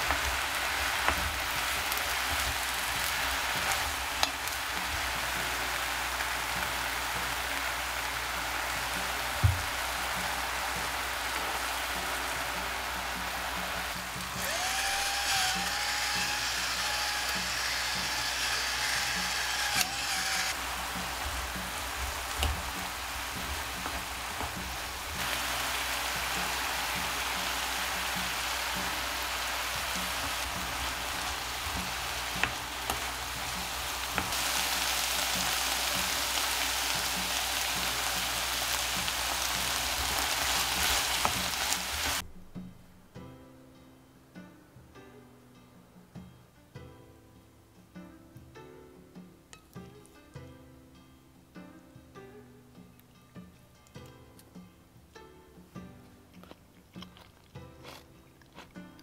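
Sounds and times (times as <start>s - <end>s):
food sizzling in a frying pan: 0.0s - 42.2s.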